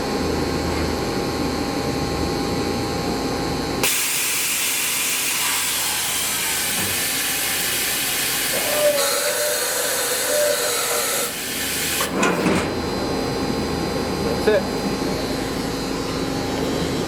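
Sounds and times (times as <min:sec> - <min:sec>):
machining center humming: 0:00.0 - 0:17.0
loud spray hiss: 0:03.8 - 0:09.0.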